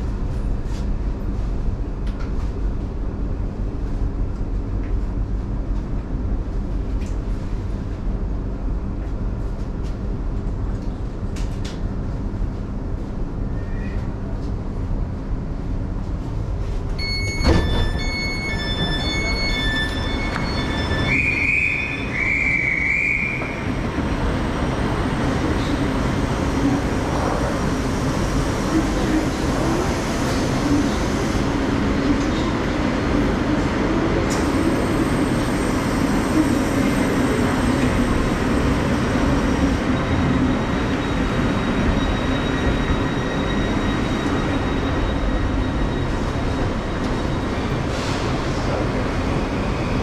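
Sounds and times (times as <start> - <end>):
electric train running rumble: 0.0 - 50.0
pulsing high door beeps: 17.0 - 23.4.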